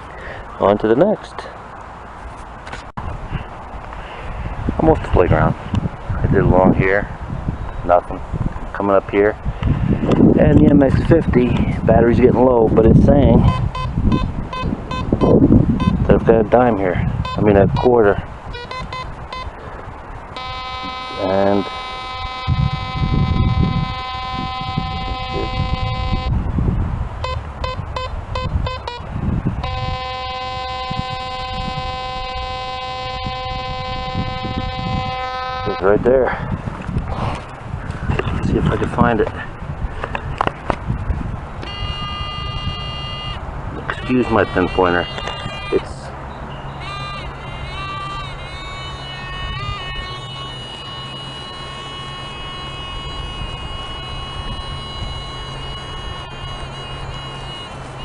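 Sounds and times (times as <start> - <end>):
low rumbling noise: 0.0 - 58.0
metal detector steady tone: 10.5 - 26.5, 27.2 - 36.1, 41.6 - 58.0.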